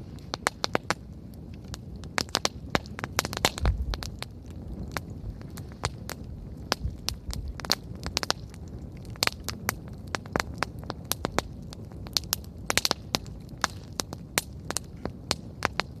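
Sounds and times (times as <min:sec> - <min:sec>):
campfire crackling and popping: 0:00.0 - 0:16.0
low rumble of flames: 0:00.0 - 0:16.0.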